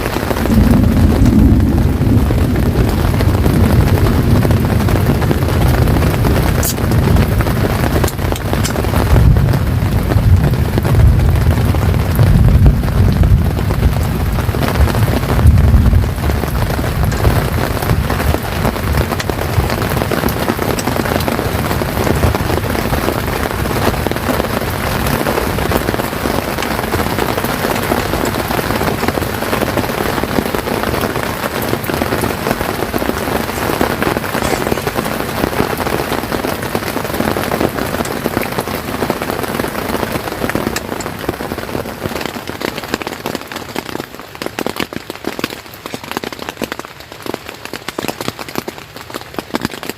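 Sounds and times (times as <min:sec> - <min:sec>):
heavy rain on a tent: 0:00.0 - 0:49.9
deep low rumble: 0:00.3 - 0:23.0.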